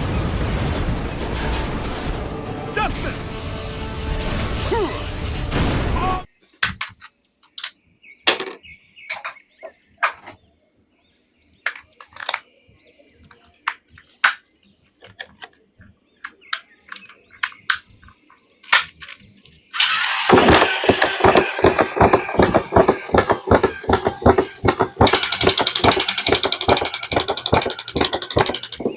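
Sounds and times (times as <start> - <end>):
loud dense crackling: 0.0 - 4.5
plastic figures clicking and scraping: 6.6 - 9.4, 11.6 - 12.5, 13.2 - 28.9.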